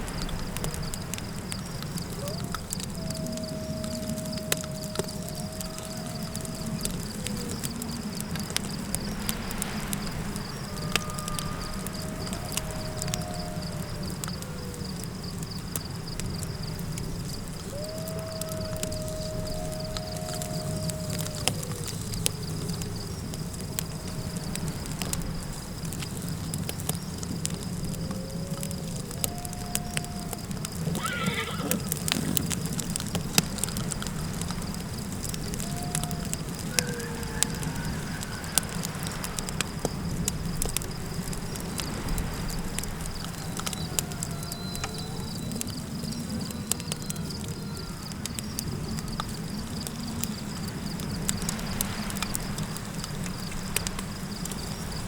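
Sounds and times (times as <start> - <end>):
faint wavering howls: 0.0 - 54.9
campfire crackling and popping: 0.0 - 55.0
insects chirring: 0.0 - 55.0
low wind rumble: 0.0 - 55.0
horse whinnying: 30.8 - 32.5.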